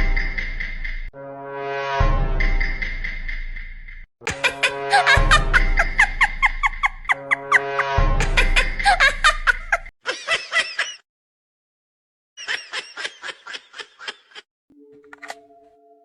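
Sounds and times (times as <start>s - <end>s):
high-pitched giggling: 4.3s - 7.4s.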